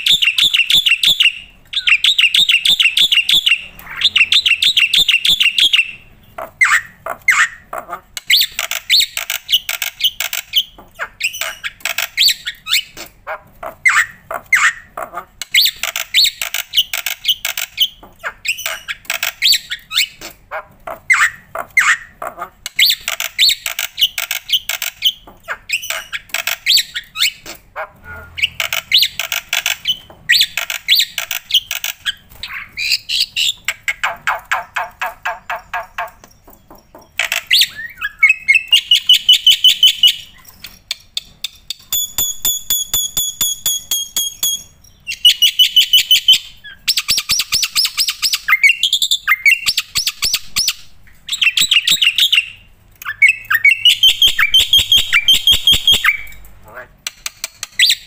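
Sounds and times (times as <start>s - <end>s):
starling singing harsh chatter: 0.0s - 7.7s.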